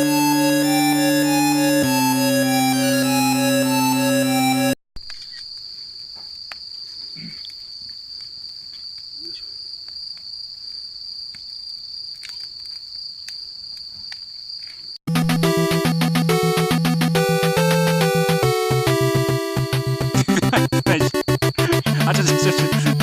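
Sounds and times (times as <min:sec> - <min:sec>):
keyboard music: 0:00.0 - 0:04.8, 0:15.1 - 0:23.0
insects trilling: 0:05.1 - 0:15.0, 0:20.2 - 0:23.0.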